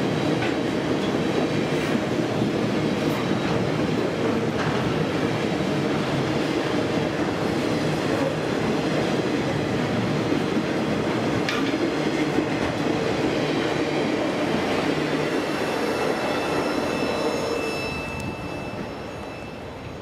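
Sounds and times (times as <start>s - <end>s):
train wheels rumbling and clattering: 0.0s - 20.0s
high wheel squeal: 15.0s - 20.0s.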